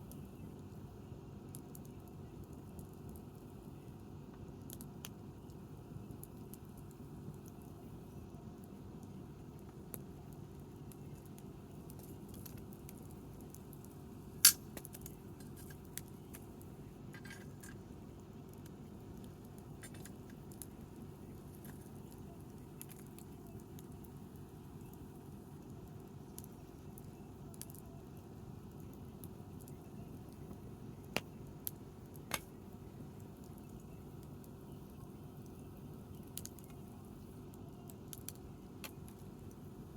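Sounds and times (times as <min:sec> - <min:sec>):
campfire crackling: 0:00.0 - 0:39.9
low background noise: 0:00.0 - 0:39.9.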